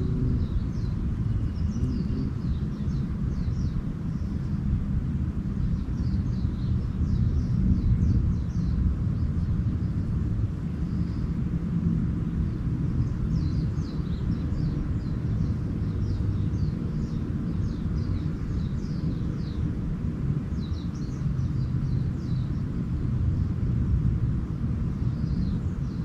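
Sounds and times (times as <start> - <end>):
low rumble: 0.0 - 18.0
small birds chirping: 0.0 - 26.0.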